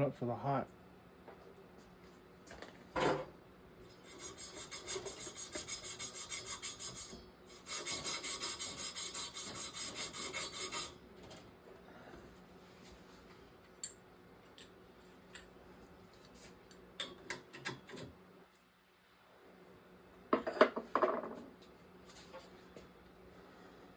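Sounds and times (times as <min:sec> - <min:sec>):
abrasive rasping on pipe: 0:04.1 - 0:10.9.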